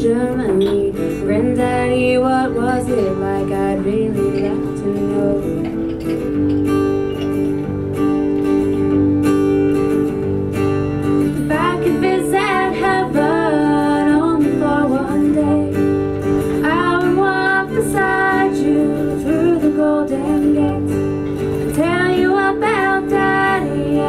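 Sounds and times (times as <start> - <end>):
woman singing: 0.0 - 5.8, 11.3 - 24.0
acoustic guitar strumming: 0.0 - 24.0.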